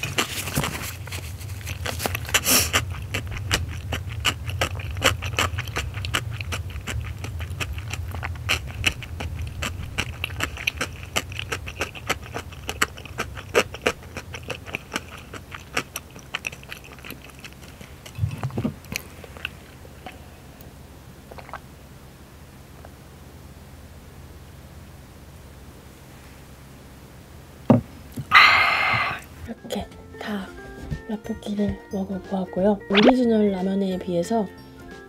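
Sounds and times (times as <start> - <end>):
wet chewing: 0.0 - 20.6, 21.2 - 21.7
person drinking from a mug: 21.3 - 21.7, 28.3 - 29.4.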